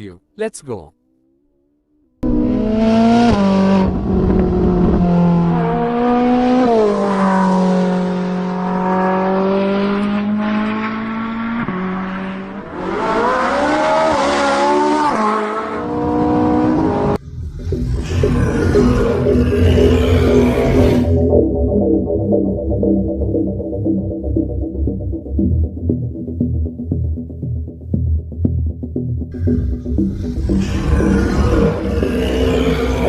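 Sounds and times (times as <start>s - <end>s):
car engine revving: 1.2s - 21.6s, 29.3s - 33.0s.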